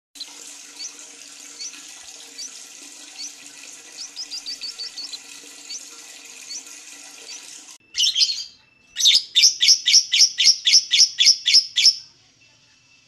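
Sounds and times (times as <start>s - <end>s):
bird chirping: 4.0s - 12.1s.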